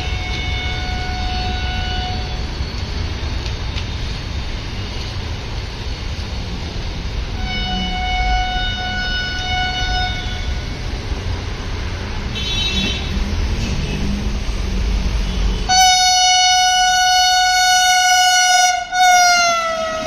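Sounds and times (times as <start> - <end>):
train horn: 0.0 - 2.4, 7.4 - 10.7, 15.7 - 20.0
train wheels rumbling on rail: 0.0 - 20.0.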